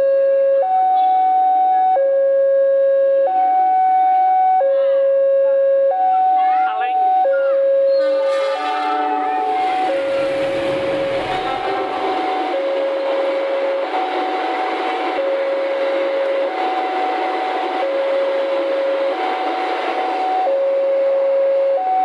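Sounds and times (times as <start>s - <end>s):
two-tone crossing alarm: 0.0s - 22.0s
train wheels roaring on rail: 8.0s - 22.0s.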